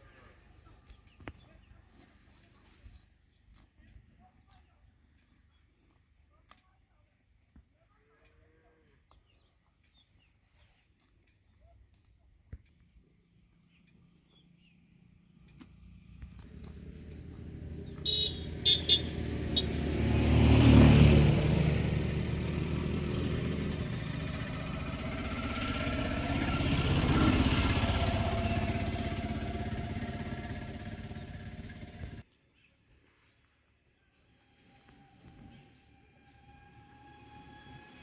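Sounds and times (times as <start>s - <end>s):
motor vehicles passing: 13.4s - 32.2s, 34.4s - 38.0s.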